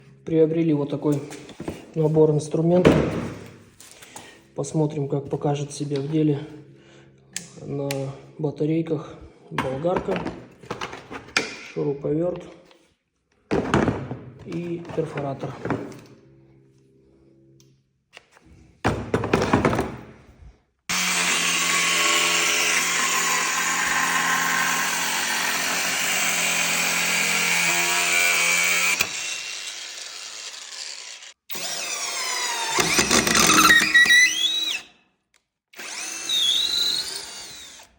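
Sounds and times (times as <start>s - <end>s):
cordless power tool motor running: 20.9s - 34.9s, 35.8s - 37.9s.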